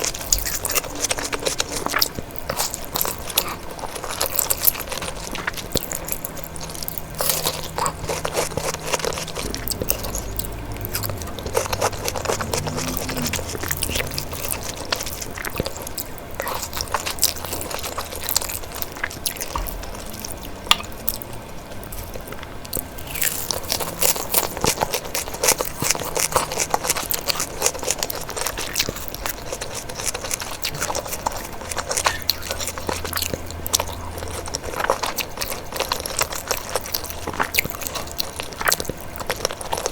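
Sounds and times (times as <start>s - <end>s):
person chewing and biting food: 0.0s - 39.9s.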